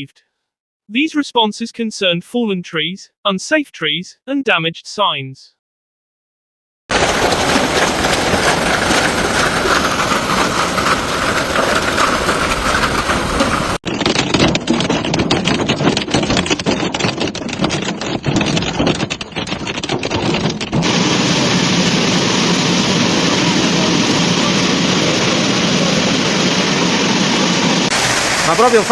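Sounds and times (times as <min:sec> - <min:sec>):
heavy rain roaring: 0:06.9 - 0:13.8, 0:20.8 - 0:28.9
hailstones clattering on hard surface: 0:06.9 - 0:21.5, 0:27.9 - 0:28.9.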